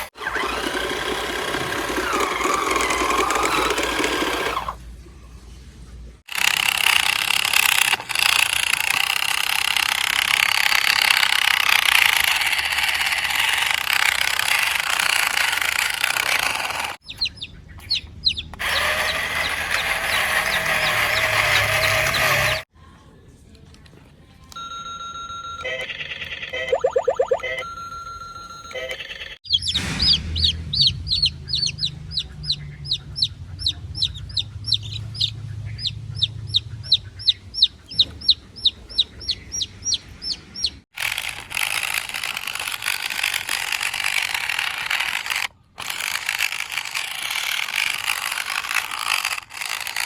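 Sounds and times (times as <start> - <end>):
dense noisy chicken chatter: 16.7 - 22.7, 29.5 - 40.8
chicks peeping: 16.9 - 22.6, 29.5 - 40.8
chickens clucking: 17.0 - 22.6, 31.1 - 40.8.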